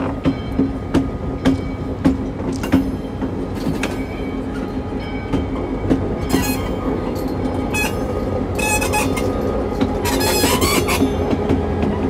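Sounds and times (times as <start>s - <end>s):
train engine and wheels rumbling: 0.0s - 12.0s
high-pitched wheel squeal: 7.7s - 9.4s, 10.0s - 11.2s.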